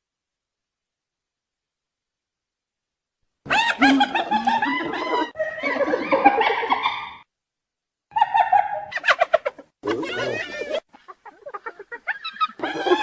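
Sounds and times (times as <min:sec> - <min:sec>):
hyena giggling yelps: 0:03.5 - 0:07.2, 0:08.1 - 0:13.0.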